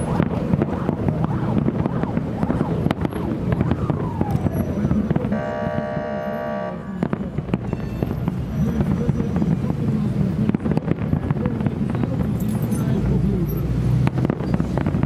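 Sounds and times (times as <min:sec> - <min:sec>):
crowd chatter: 0:00.0 - 0:15.0
fireworks bangs and crackles: 0:00.0 - 0:15.0
horn-like tone: 0:05.3 - 0:06.9.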